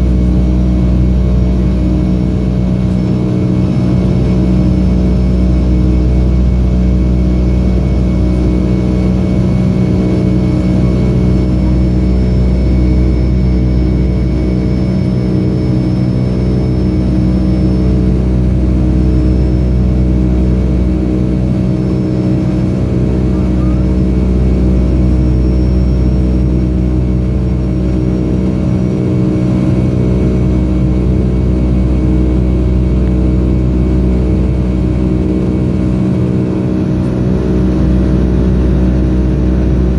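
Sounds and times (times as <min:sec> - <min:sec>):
jet engine drone: 0:00.0 - 0:39.9
thin high whine: 0:21.3 - 0:28.6.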